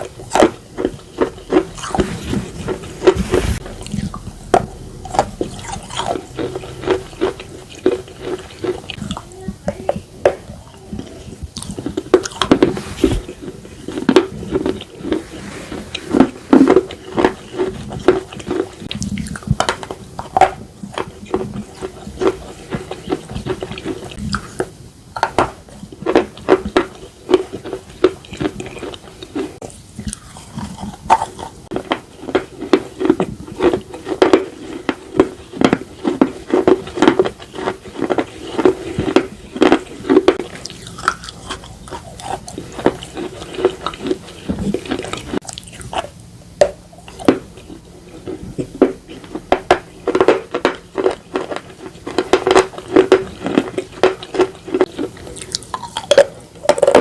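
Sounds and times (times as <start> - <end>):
chewing slate pieces crunching: 0.0 - 9.3, 10.2 - 57.0.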